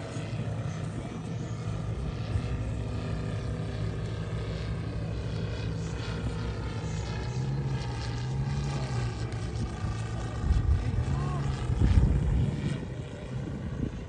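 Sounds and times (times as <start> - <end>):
model plane engine with propeller drone: 0.0 - 14.0.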